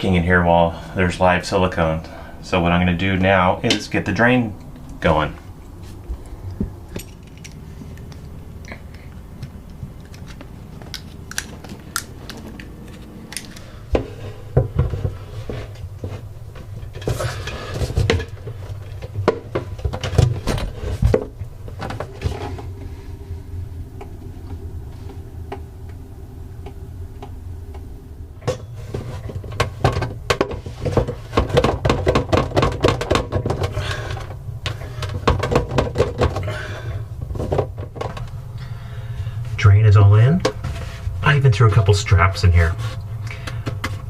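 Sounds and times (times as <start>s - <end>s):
steady low hum: 0.0s - 44.0s
sink drain parts clicking and rattling: 6.5s - 13.7s, 29.3s - 36.6s.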